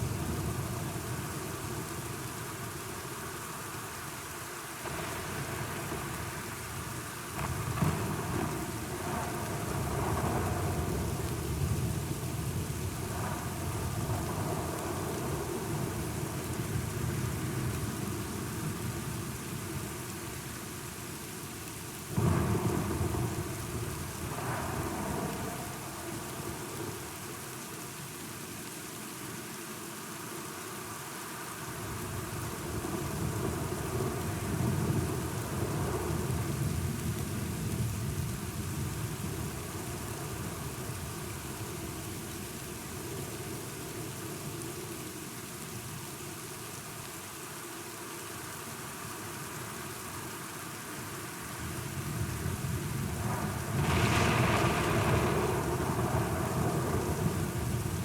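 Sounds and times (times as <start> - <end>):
steady rain falling: 0.0 - 58.0
thunder rumbling: 52.0 - 58.0.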